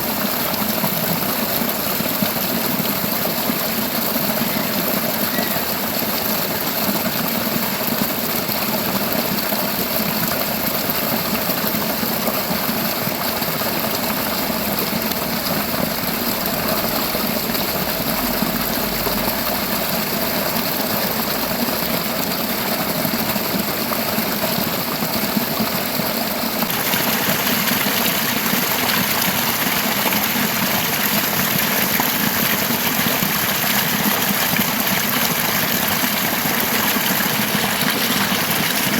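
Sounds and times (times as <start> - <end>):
river rushing over rocks: 26.4 - 38.9.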